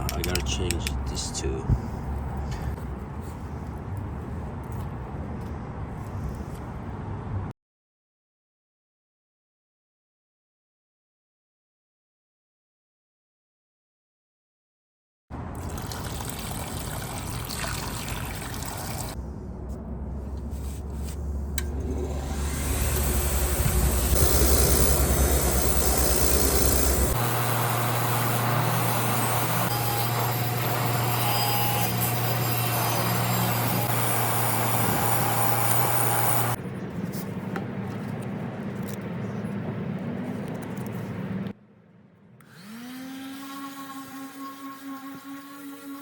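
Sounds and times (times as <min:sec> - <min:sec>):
rough rubbing scraping: 0:20.2 - 0:27.2
motor-driven tool humming: 0:21.8 - 0:36.6.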